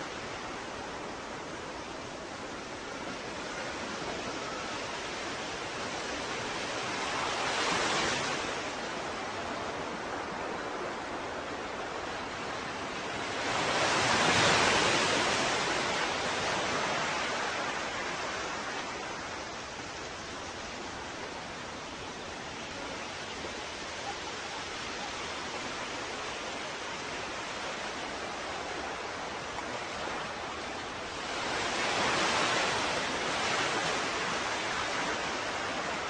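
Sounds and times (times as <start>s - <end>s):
ocean surf washing: 0.0s - 36.0s
waves breaking: 0.0s - 36.0s.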